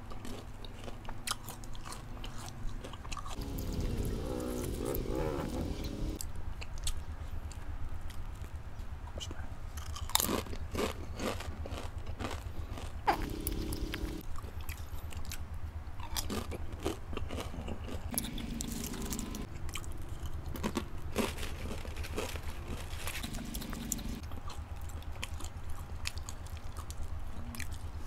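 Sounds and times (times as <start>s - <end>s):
crunching chips: 0.0s - 5.1s, 9.8s - 28.0s
low hum: 3.4s - 6.2s, 13.0s - 14.2s, 18.1s - 21.1s, 22.0s - 24.4s.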